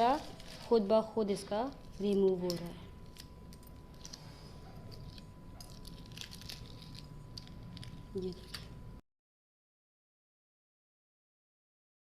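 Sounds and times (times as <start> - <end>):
eggshell crackling as peeled: 1.7 - 8.8.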